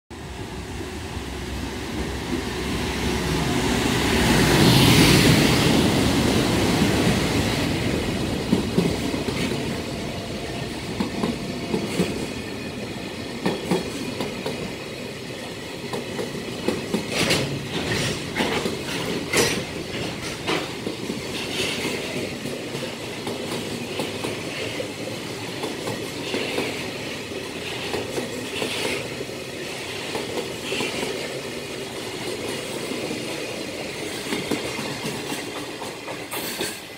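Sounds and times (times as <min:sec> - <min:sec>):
electric locomotive passing: 0:00.1 - 0:36.9
wagons clattering over rails: 0:16.0 - 0:24.4.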